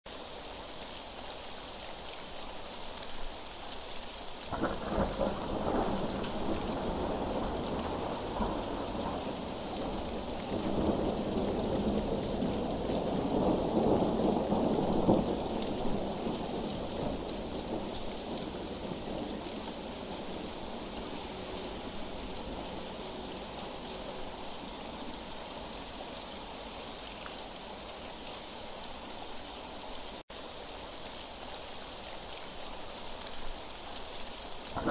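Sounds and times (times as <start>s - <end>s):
steady rain: 0.0s - 34.9s
thunder rolling: 4.5s - 24.4s.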